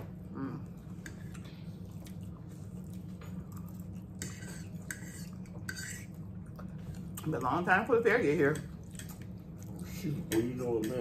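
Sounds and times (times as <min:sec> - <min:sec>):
steady low hum: 0:00.0 - 0:11.0
people chewing: 0:00.4 - 0:07.3, 0:08.6 - 0:11.0
forks tapping on plates: 0:10.1 - 0:11.0.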